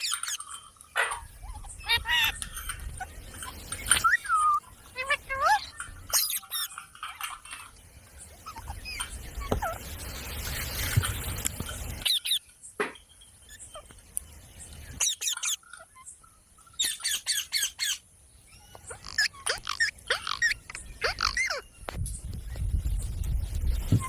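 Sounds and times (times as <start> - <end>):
parrot squawking: 0.0 - 2.4, 18.8 - 21.6.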